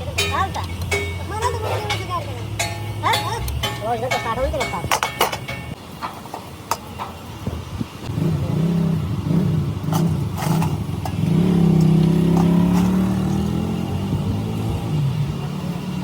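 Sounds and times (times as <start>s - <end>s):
sharp metallic clicks: 1.9s - 7.1s
engine revving: 8.0s - 16.0s.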